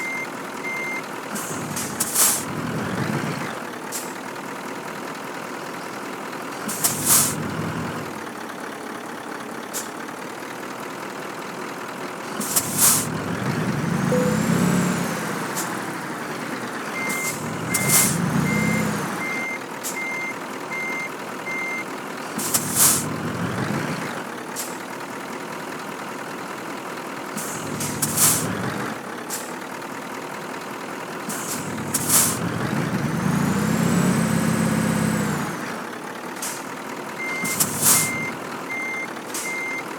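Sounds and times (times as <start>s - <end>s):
reversing alarm beeps: 0.0s - 1.0s, 14.1s - 14.7s, 17.0s - 21.8s, 37.2s - 39.8s
truck engine revving: 0.0s - 10.2s, 11.1s - 26.0s, 27.2s - 39.9s
air brake hiss: 1.4s - 2.5s, 3.9s - 4.2s, 6.7s - 7.4s, 9.7s - 10.0s, 12.4s - 13.1s, 17.2s - 18.2s, 22.4s - 23.1s, 24.6s - 24.8s, 27.4s - 28.5s, 29.3s - 29.6s, 31.3s - 32.4s, 36.4s - 36.7s, 37.4s - 38.3s.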